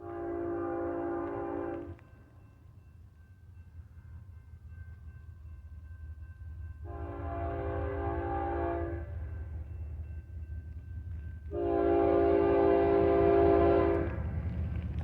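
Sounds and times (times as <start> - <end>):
locomotive air horn blasts: 0.0 - 2.0, 6.8 - 9.2, 11.5 - 14.2
train low rumble: 0.0 - 15.0.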